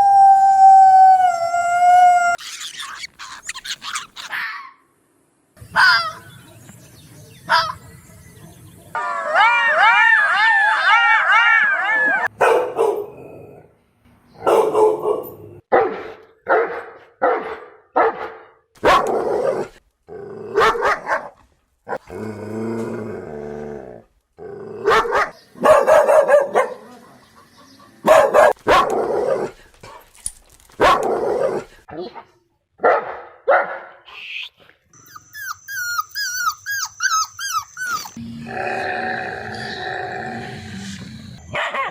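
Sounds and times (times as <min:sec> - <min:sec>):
dog barking: 0:12.1 - 0:13.2, 0:14.4 - 0:19.7, 0:20.6 - 0:22.0, 0:24.8 - 0:30.0, 0:30.8 - 0:34.1, 0:41.5 - 0:41.9.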